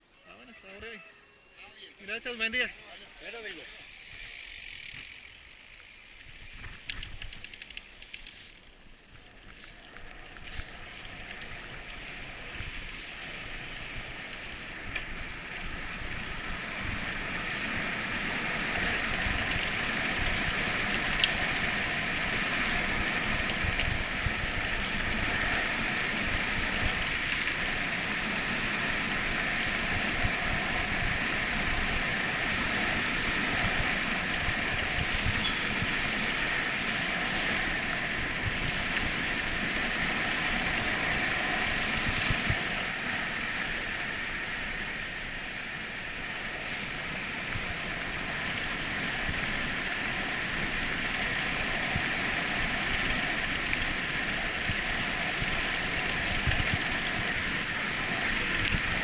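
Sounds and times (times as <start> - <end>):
wind buffeting microphone: 12.5 - 42.7.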